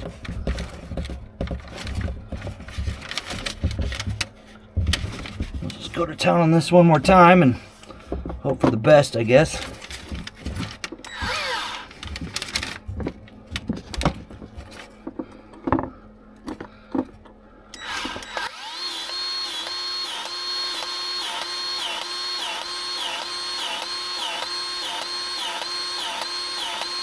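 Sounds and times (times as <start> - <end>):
powered grease gun motor whine: 11.0 - 12.4, 17.7 - 27.0.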